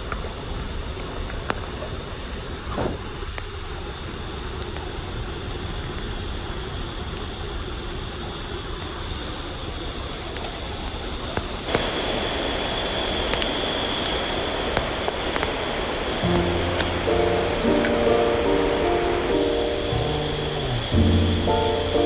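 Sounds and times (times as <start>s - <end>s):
faint high whine: 11.7s - 22.0s
river water rushing: 14.4s - 22.0s.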